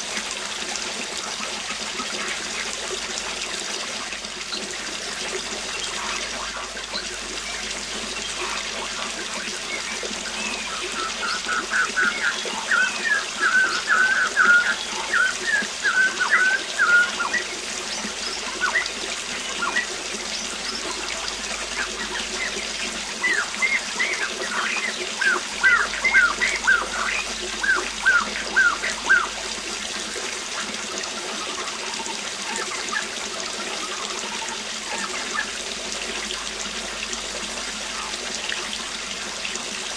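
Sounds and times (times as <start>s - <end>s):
waterfall splashing: 0.0s - 39.9s
bird singing: 5.7s - 29.4s.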